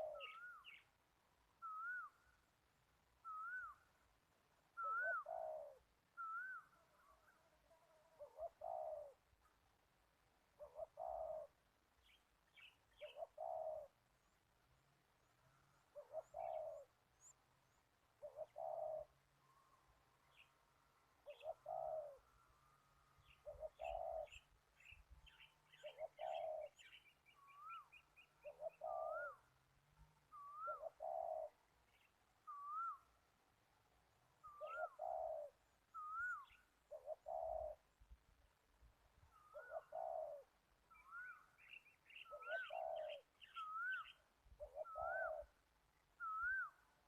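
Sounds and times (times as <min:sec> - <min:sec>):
dove cooing: 0:00.0 - 0:00.8, 0:04.8 - 0:09.2, 0:10.6 - 0:11.6, 0:13.0 - 0:14.0, 0:15.9 - 0:16.9, 0:18.2 - 0:19.1, 0:21.2 - 0:22.3, 0:23.4 - 0:24.4, 0:25.7 - 0:26.8, 0:28.4 - 0:29.4, 0:30.3 - 0:31.6, 0:34.4 - 0:37.8, 0:39.3 - 0:41.5, 0:42.2 - 0:45.6.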